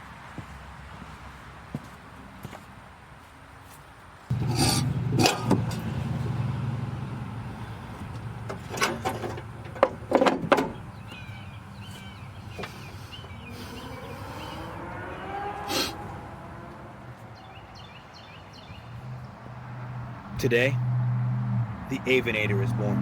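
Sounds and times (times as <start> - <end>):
car engine idling: 4.3 - 20.9.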